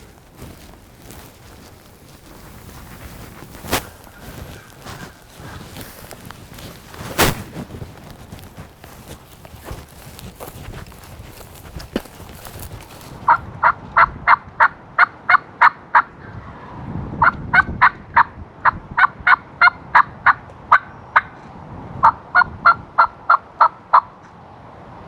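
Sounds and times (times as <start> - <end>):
wind rumble: 0.0 - 14.3.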